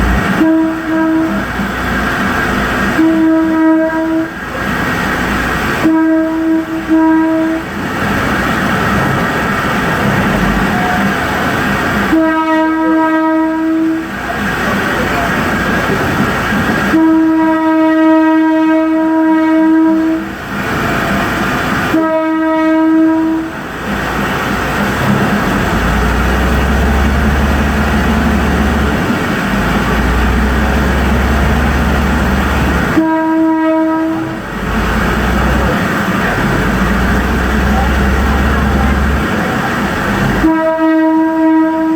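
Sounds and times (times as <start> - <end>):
train horn blasts: 0.0 - 4.6, 5.6 - 7.8, 10.2 - 14.2, 16.8 - 20.4, 21.8 - 23.7, 25.0 - 35.7, 36.4 - 41.9
train rumbling: 0.0 - 41.9
low drone: 24.6 - 33.0, 34.2 - 40.5.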